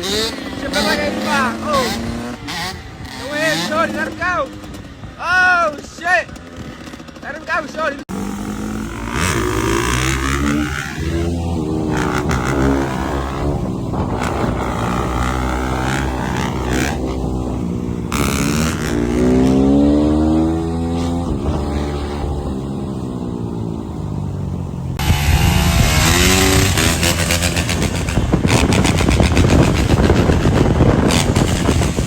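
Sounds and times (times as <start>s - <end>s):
motorcycle engine revving: 0.0s - 32.0s
hissing noise rushes: 25.0s - 30.5s.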